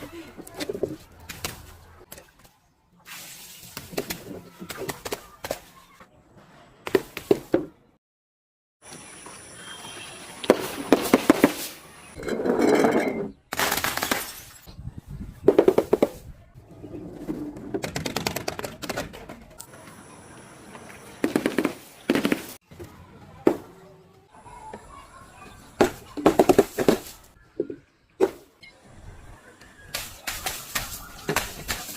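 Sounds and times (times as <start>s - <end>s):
shattering: 13.5s - 14.7s.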